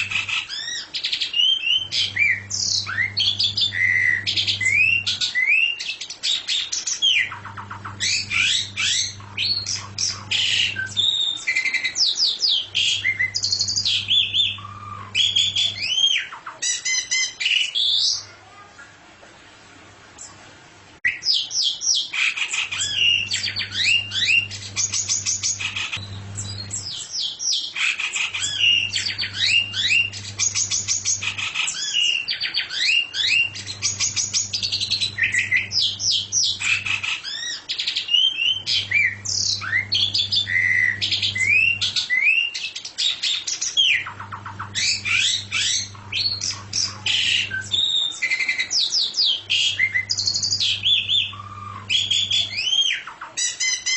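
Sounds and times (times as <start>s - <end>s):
songbird chattering song: 0.0s - 18.3s, 21.1s - 53.9s.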